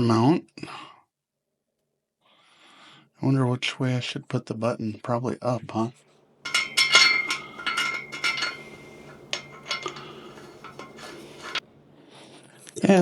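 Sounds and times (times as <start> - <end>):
metal camera mount clinking: 6.5 - 11.6.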